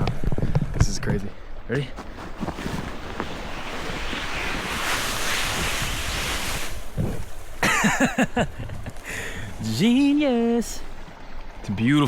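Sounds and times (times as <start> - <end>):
person sliding through snow: 1.9 - 9.9.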